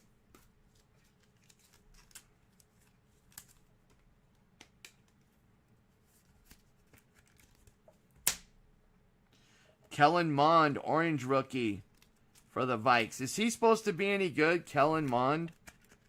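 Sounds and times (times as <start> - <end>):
trading cards flipped by hand: 0.3 - 4.0, 6.1 - 8.5.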